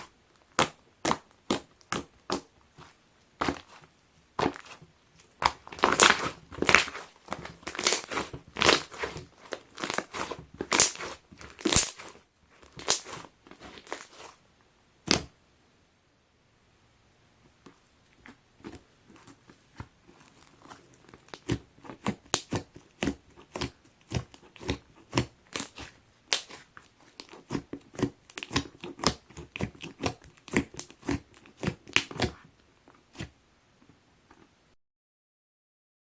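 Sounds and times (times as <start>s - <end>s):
slime clicking and popping: 5.4s - 14.3s, 22.2s - 26.6s, 27.2s - 32.4s.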